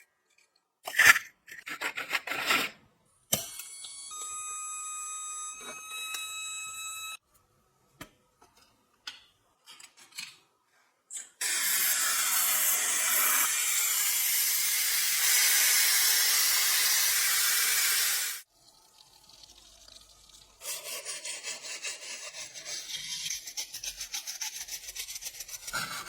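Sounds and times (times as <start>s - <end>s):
loud steady spray hiss: 11.4s - 18.4s.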